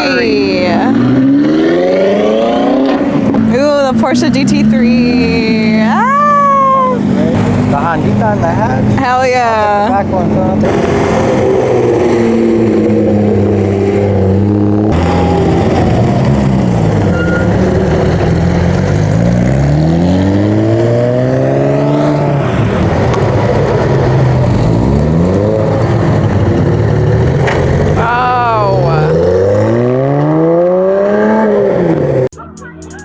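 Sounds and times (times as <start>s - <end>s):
car engine revving: 0.0s - 32.3s
car engines running: 0.0s - 32.4s.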